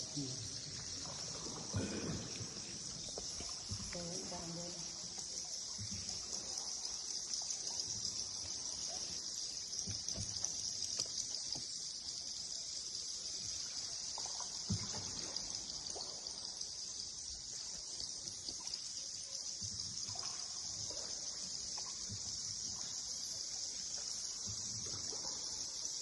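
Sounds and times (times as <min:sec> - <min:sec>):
high-pitched hiss: 0:00.0 - 0:26.0
water trickling: 0:00.0 - 0:26.0.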